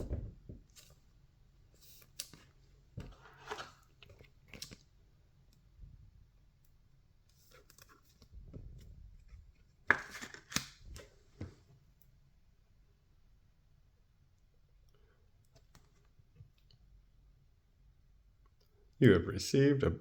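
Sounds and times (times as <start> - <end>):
cards rustling and crinkling: 1.8 - 4.9, 9.8 - 11.1.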